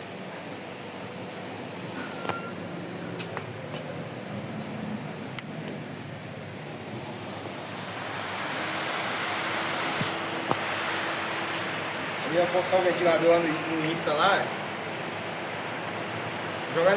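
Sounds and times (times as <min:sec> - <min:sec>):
electric fan running: 0:00.0 - 0:16.9
fan motor low hum: 0:00.0 - 0:16.9.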